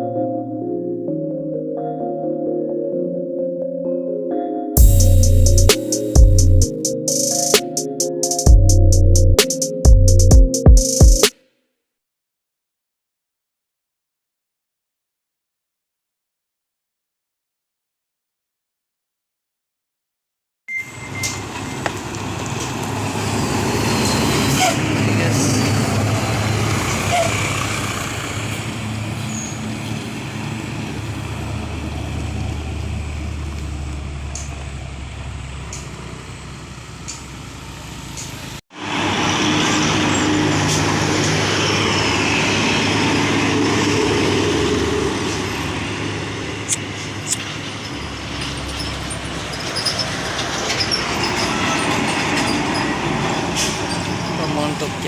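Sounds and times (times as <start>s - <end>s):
road noise: 4.8s - 10.3s, 20.7s - 55.0s
diesel truck engines running: 21.0s - 55.0s.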